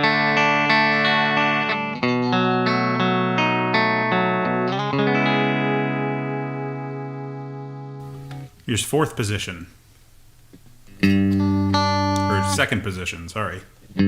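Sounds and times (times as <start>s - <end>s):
clean electric guitar chords: 0.0s - 8.6s, 10.9s - 12.8s.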